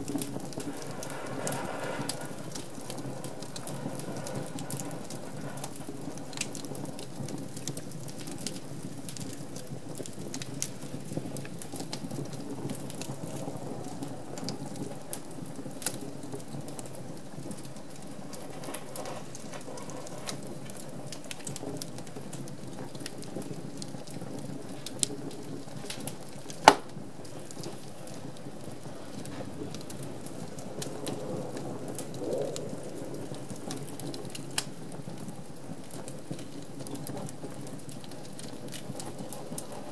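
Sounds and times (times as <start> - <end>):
fire crackling: 0.0 - 39.9
fire flame hiss: 0.0 - 39.9
loud pop of fire: 24.9 - 27.6.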